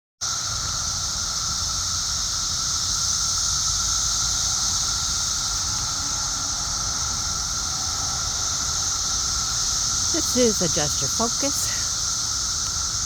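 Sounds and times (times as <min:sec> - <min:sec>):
cicadas droning: 0:00.2 - 0:13.0.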